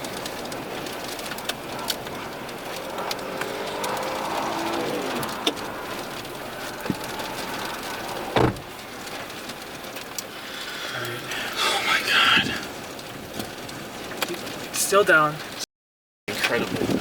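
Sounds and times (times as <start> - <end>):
wind rushing: 0.0 - 9.2
vehicle passing: 0.0 - 13.0
sharp thump: 8.4 - 8.7.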